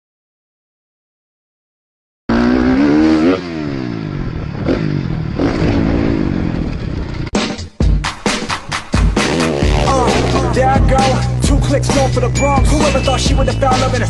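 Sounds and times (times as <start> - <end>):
motocross bike engine revving: 2.3 - 7.3, 9.1 - 12.4.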